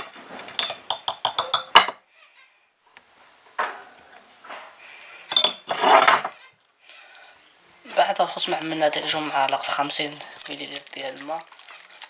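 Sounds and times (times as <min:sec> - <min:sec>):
spoon scraping: 0:00.0 - 0:01.8, 0:05.3 - 0:06.5
spoon clinking on container: 0:00.6 - 0:01.8.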